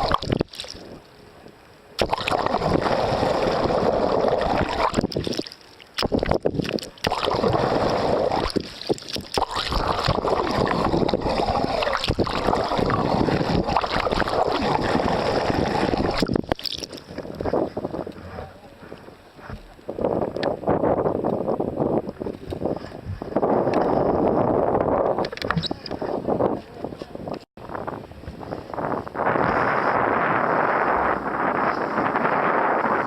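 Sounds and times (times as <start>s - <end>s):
wind on microphone: 0.0s - 5.4s, 6.0s - 33.0s
water rushing past hull: 0.0s - 25.8s.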